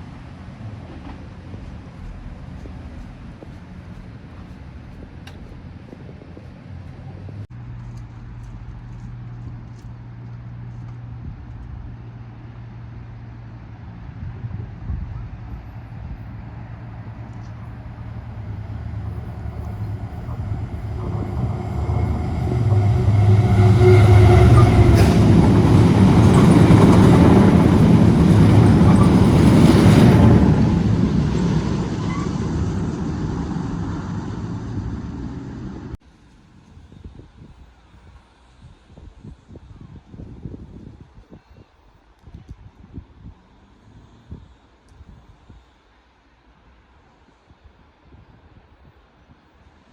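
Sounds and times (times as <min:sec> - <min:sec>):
diesel train passing: 0:00.0 - 0:36.0.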